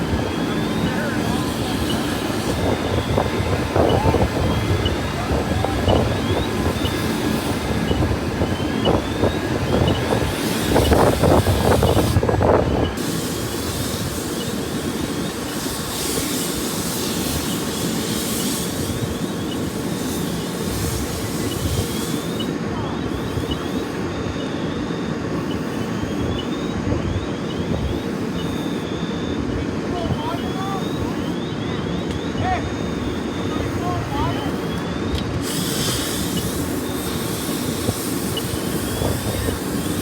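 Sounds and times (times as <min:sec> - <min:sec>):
vehicle engine running: 0:00.0 - 0:24.1.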